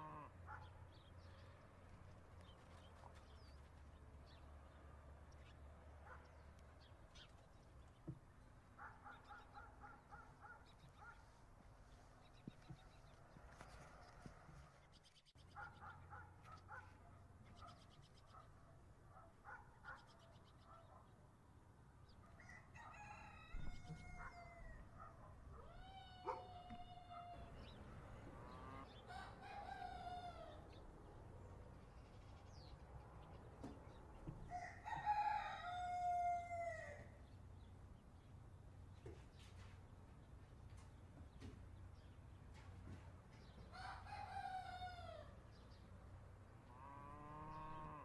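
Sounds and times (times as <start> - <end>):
rooster crowing: 22.4 - 24.9, 28.7 - 30.6, 34.5 - 37.1, 43.7 - 45.3.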